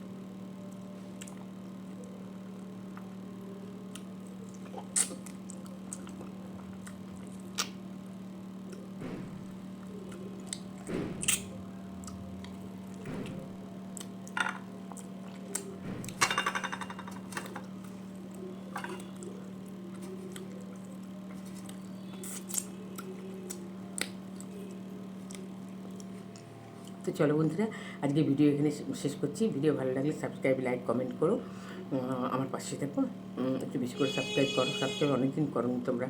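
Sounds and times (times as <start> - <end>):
steady low hum: 0.0 - 36.0
person chewing food: 3.9 - 7.8, 19.0 - 27.0.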